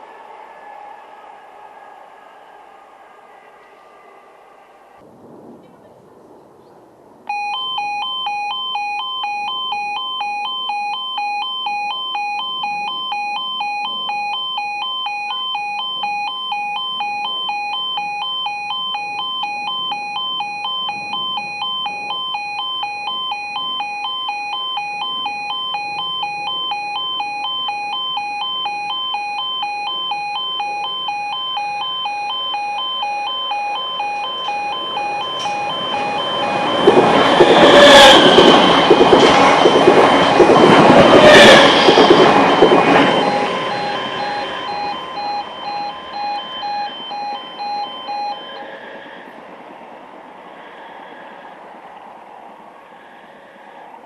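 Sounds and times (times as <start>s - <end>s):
level crossing two-tone alarm: 7.3s - 49.2s.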